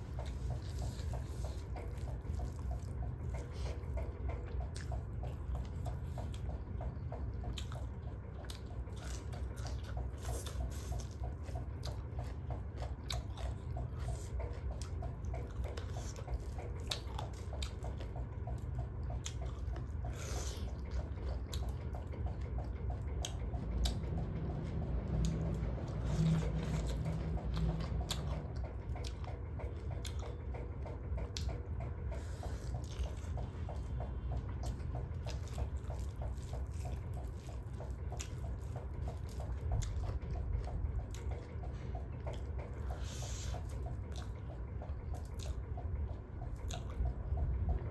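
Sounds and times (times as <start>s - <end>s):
mouth chewing and smacking: 0.0s - 47.9s
low hum: 11.0s - 47.9s.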